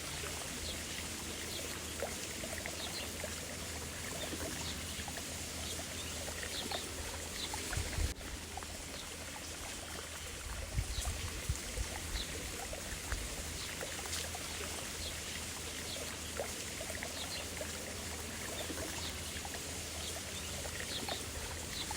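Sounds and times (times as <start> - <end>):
running water: 0.0 - 21.9.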